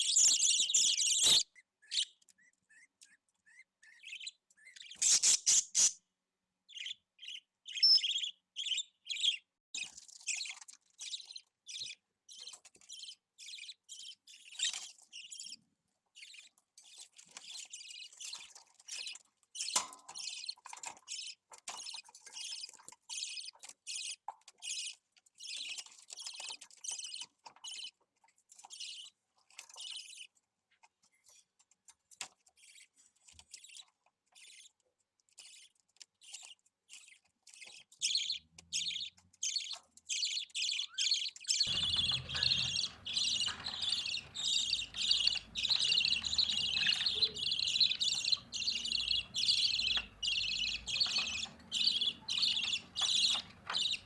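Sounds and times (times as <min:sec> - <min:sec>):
budgerigar chicks chirping: 0:00.0 - 0:05.9, 0:06.8 - 0:09.4, 0:37.6 - 0:54.0.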